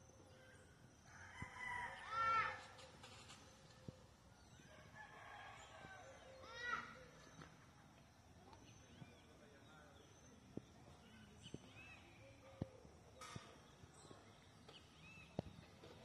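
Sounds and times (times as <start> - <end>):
small birds chirping: 5.6 - 16.0.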